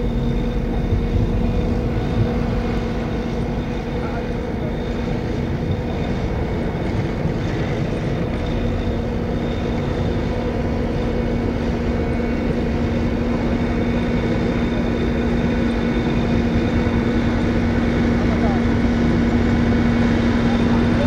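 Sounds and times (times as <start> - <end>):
tractor engine droning: 0.0 - 21.0.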